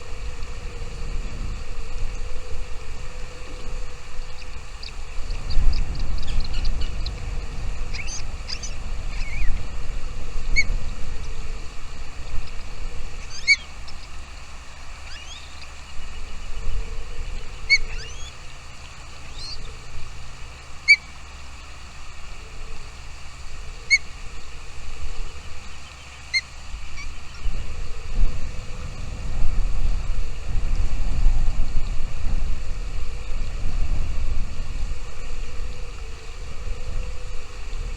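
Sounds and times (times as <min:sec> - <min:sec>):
thin rising bird calls: 0:02.0 - 0:09.7, 0:12.4 - 0:28.6
small bird chirping: 0:07.9 - 0:09.6, 0:13.2 - 0:14.1, 0:15.0 - 0:16.5, 0:17.7 - 0:18.5, 0:19.3 - 0:19.7.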